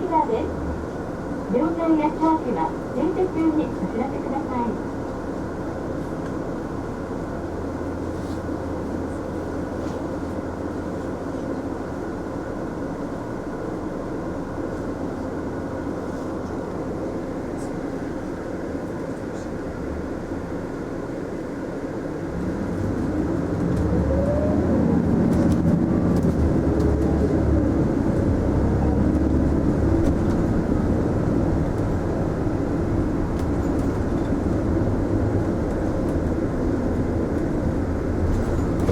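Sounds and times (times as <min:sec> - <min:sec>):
bus engine running: 0:00.0 - 0:38.9
engine whine accelerating: 0:22.3 - 0:32.3.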